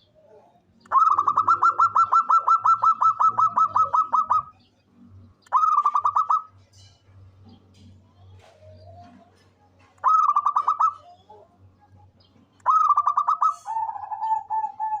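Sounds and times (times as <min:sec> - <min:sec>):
dove cooing: 0:00.0 - 0:04.6, 0:05.5 - 0:06.6, 0:08.4 - 0:11.9, 0:12.6 - 0:15.0.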